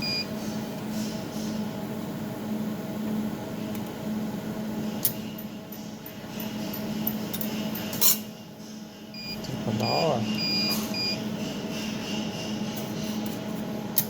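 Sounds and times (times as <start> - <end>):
laser welding machine humming: 0.0 - 14.0
short electronic beeps: 9.2 - 11.2.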